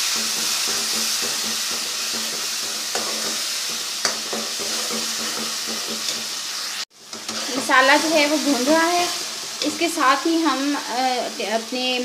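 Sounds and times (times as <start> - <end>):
spices sizzling in oil: 0.0 - 12.0.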